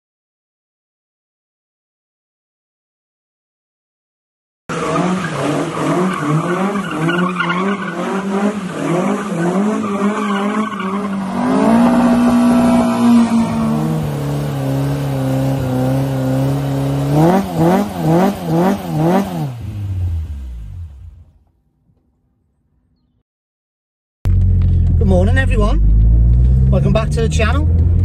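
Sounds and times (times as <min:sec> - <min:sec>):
tyres spinning and squealing: 0:04.7 - 0:16.1
car engine revving hard: 0:04.7 - 0:21.2.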